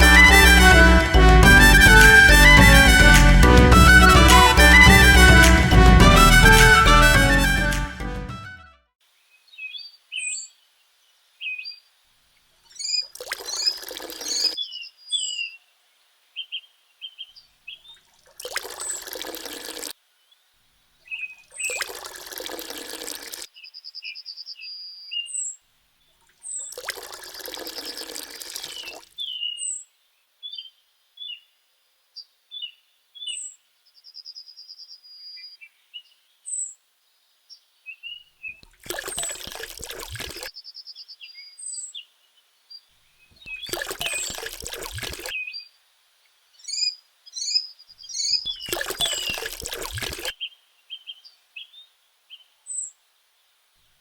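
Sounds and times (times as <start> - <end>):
small birds chirping: 40.5 - 44.0, 46.5 - 49.3.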